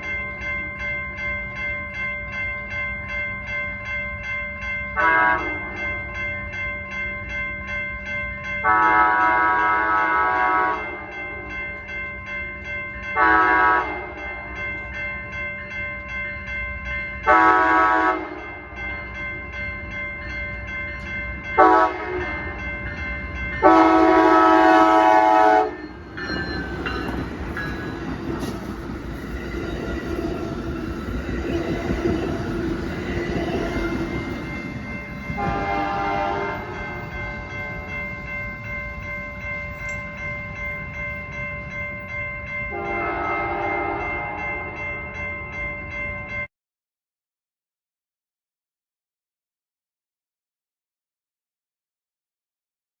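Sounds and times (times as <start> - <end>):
train horn blasts: 5.0 - 5.6, 8.6 - 11.2, 13.2 - 14.4, 17.3 - 18.5, 21.6 - 22.4, 23.6 - 25.8, 35.4 - 37.0, 42.7 - 44.6
train rumbling on rails: 16.1 - 46.0.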